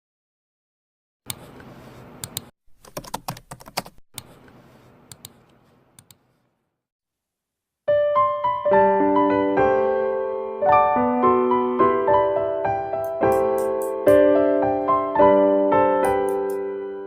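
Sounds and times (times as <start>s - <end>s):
computer keys typing: 2.2s - 4.5s, 5.1s - 6.2s, 13.0s - 14.2s, 16.0s - 16.6s
piano music: 7.9s - 17.0s.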